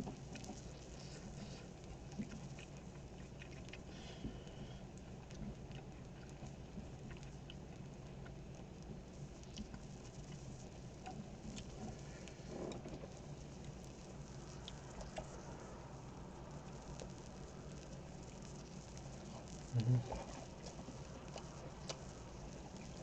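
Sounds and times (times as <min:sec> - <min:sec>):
close-miked chewing: 0:00.0 - 0:23.0.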